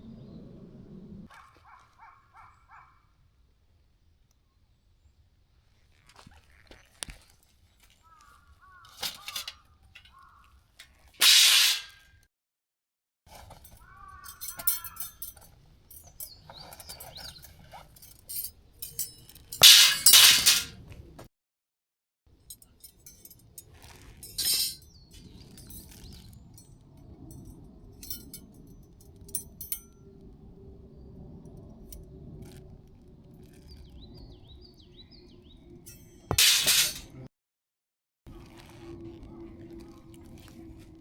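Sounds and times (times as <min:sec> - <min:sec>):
birds chirping faintly: 0:00.0 - 0:03.2, 0:13.7 - 0:19.6, 0:22.6 - 0:29.8, 0:33.0 - 0:36.3
camp gear clinking and knocking: 0:06.8 - 0:11.4, 0:13.3 - 0:21.3, 0:22.4 - 0:29.9, 0:35.7 - 0:37.3.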